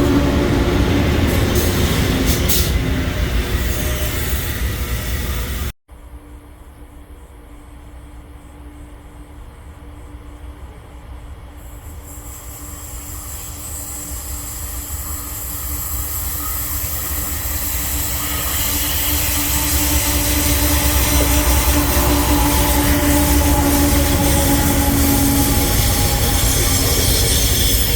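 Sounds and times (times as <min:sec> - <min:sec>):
diesel locomotive rumble: 0:00.0 - 0:05.7, 0:15.0 - 0:27.9
wheels ringing on rails: 0:11.6 - 0:27.9.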